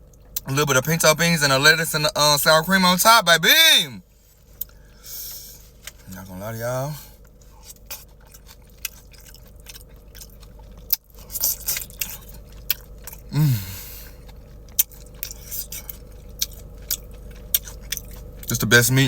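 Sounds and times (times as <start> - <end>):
wet chewing and lip smacking: 4.4 - 4.8, 7.2 - 13.3, 14.0 - 18.6
person humming approval: 13.3 - 14.0.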